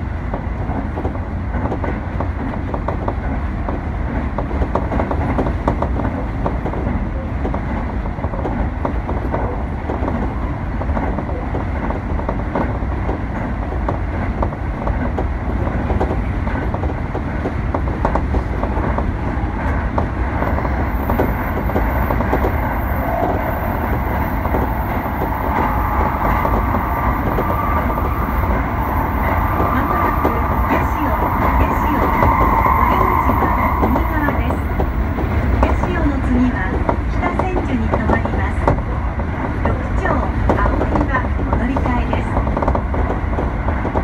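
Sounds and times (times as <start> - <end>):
train wheels rumbling on rail: 0.0 - 44.0
high ringing tone: 20.7 - 35.1.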